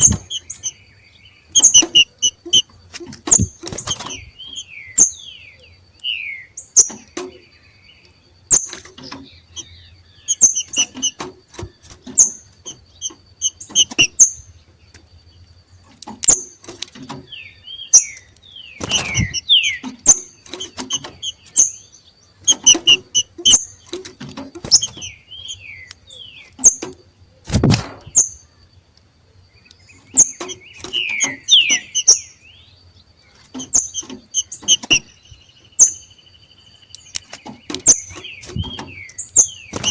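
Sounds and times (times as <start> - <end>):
loud thumps: 0.0 - 0.7, 1.6 - 4.4, 18.8 - 19.8, 27.5 - 28.2
sharp clicks: 0.0 - 0.7, 1.6 - 4.6, 8.0 - 14.2, 18.0 - 21.6, 22.4 - 26.0, 33.5 - 35.1, 36.8 - 39.9
birds chattering chirps: 0.0 - 39.9.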